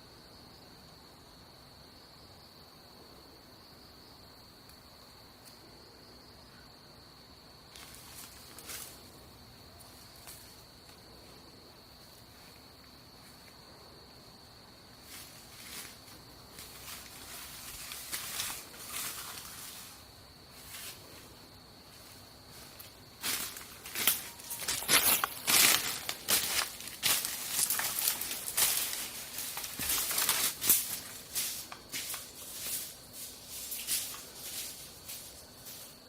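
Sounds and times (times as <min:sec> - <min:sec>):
insect trill: 0:00.0 - 0:36.0
rustling through dry leaves: 0:15.0 - 0:21.3, 0:22.0 - 0:36.0.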